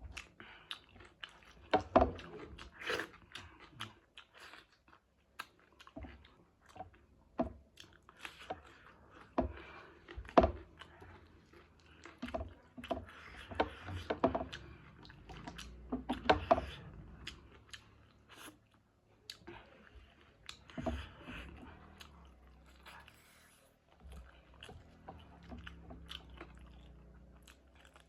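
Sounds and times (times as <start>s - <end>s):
person chewing food: 0.0s - 28.0s
food crunching: 23.8s - 28.0s.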